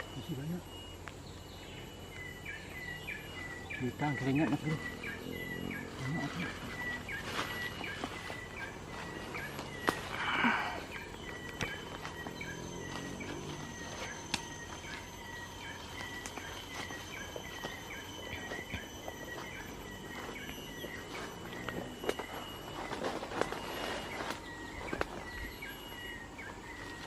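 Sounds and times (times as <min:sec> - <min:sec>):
sharp clicks: 0:14.2 - 0:14.8.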